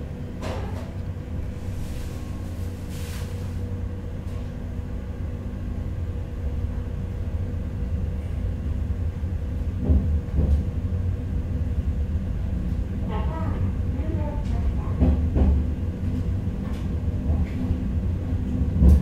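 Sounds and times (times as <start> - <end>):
train interior rumble: 0.0 - 19.0.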